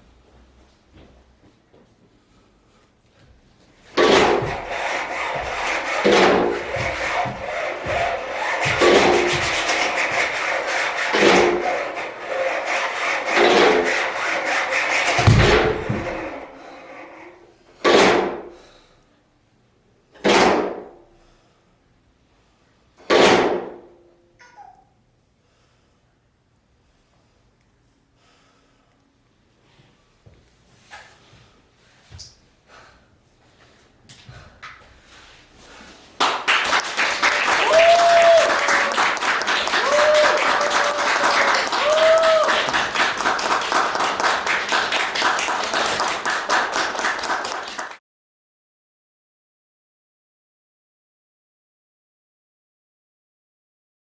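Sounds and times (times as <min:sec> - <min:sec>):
audience applauding: 0:36.2 - 0:48.0.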